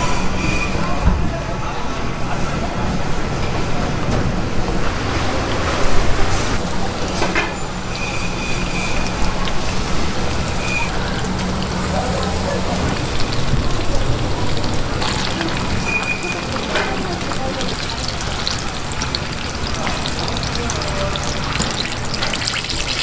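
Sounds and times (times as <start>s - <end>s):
faint voices: 0.0s - 23.0s.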